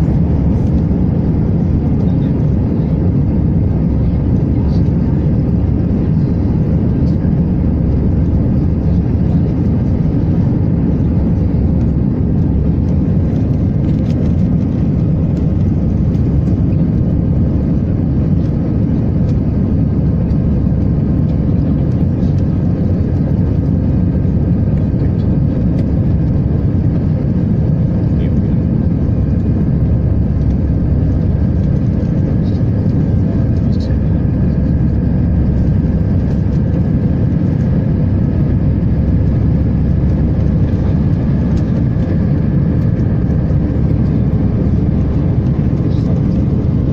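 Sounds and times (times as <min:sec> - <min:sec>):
aircraft engines rumbling: 0:00.0 - 0:46.9.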